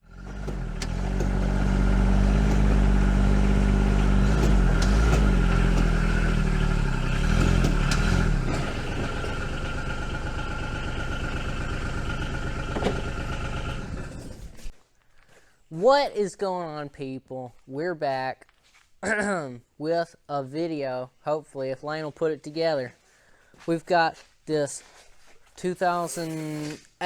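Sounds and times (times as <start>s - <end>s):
constant engine whine: 0.0s - 14.7s
diesel engine running: 0.0s - 14.7s.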